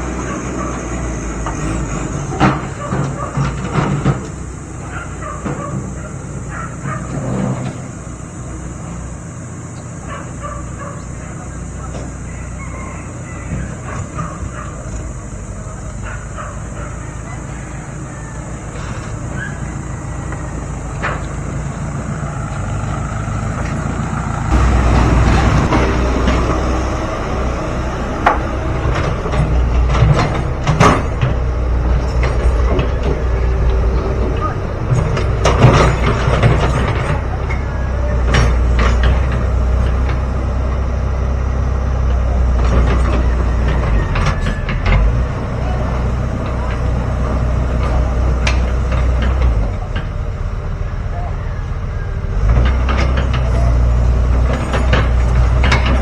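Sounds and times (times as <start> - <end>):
dump truck engine running: 0.0 - 56.0
sharp knocks and clanks: 24.5 - 40.8, 52.4 - 56.0.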